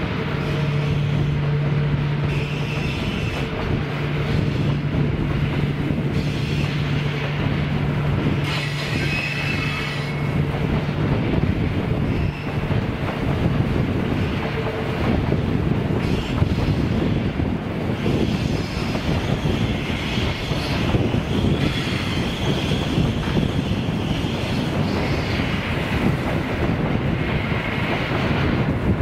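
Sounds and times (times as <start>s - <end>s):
diesel locomotive engine drone: 0.0s - 29.0s
train rumbling: 0.0s - 29.0s
wheels squealing: 8.4s - 10.4s.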